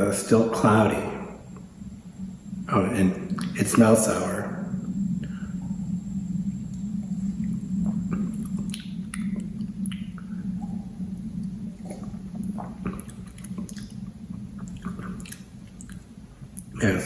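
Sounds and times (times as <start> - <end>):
steady low hum: 0.0 - 17.0
mouth clicks and lip smacks: 3.3 - 3.6, 7.4 - 16.8.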